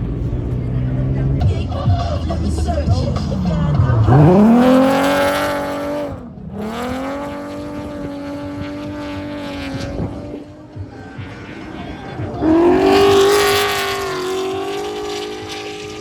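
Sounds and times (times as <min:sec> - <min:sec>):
car engine revving hard: 0:03.2 - 0:10.9, 0:12.1 - 0:16.0.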